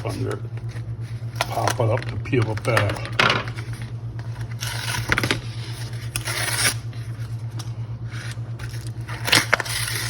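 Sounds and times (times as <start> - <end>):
foil cover ripping: 4.4 - 7.4, 8.6 - 10.0.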